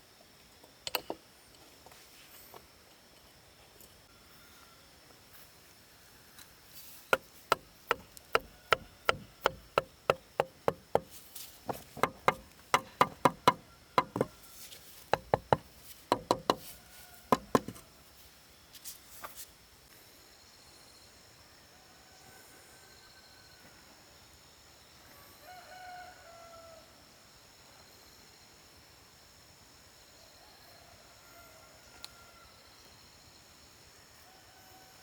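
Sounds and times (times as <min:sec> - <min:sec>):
hammer driving nails into wood: 0:07.2 - 0:14.4, 0:15.2 - 0:16.7, 0:17.3 - 0:17.8.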